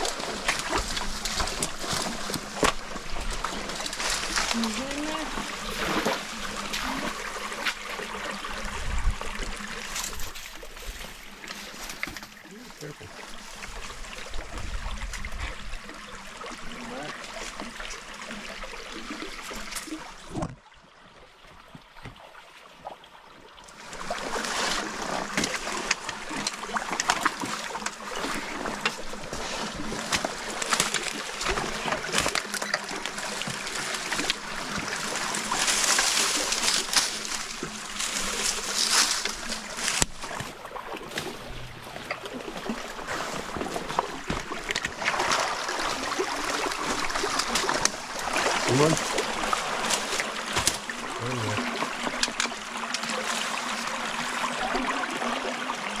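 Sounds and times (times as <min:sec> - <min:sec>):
people wading splashes: 0:00.0 - 0:20.0, 0:23.7 - 0:56.0
stream water trickling: 0:00.0 - 0:56.0.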